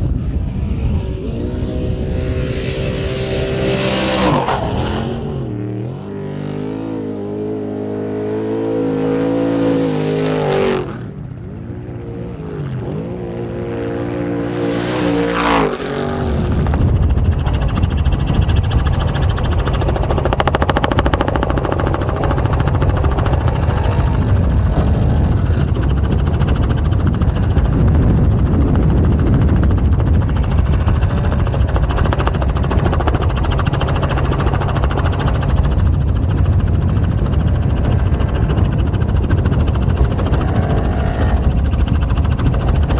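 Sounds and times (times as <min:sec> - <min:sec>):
motor running with fast pulsing: 0:14.8 - 0:42.9.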